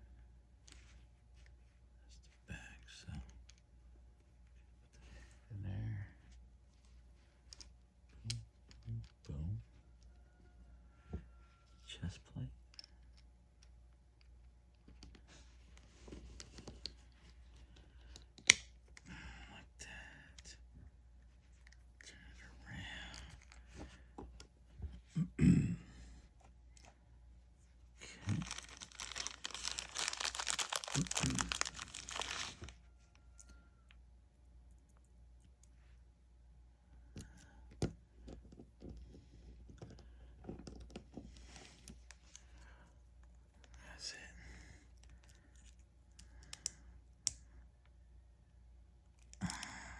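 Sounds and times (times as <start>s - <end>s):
plastic parts clicking and rustling: 28.2s - 32.7s.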